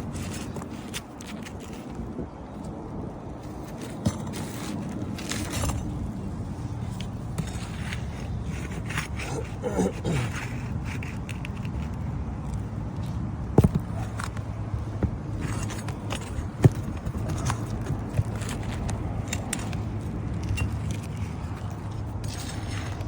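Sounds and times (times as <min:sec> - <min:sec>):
metal tool scraping shingles: 0:07.4 - 0:12.0.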